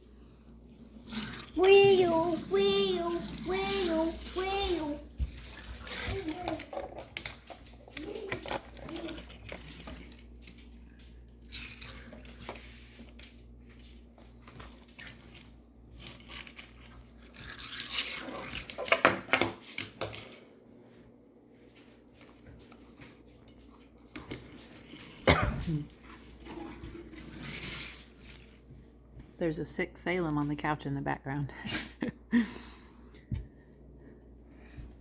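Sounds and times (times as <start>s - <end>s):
toy vehicles scraping and rattling: 0.7s - 20.4s, 25.9s - 28.6s.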